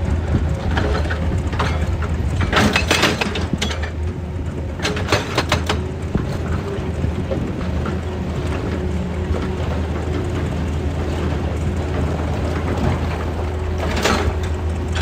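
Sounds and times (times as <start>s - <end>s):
excavator engine running: 0.0s - 15.0s
rock cracking and clattering: 4.8s - 15.0s.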